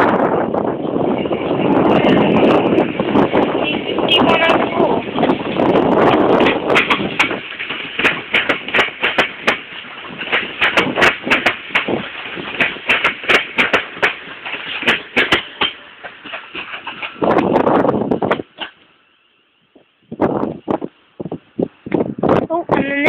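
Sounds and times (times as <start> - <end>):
train wheels clattering over rails: 1.4 - 18.8.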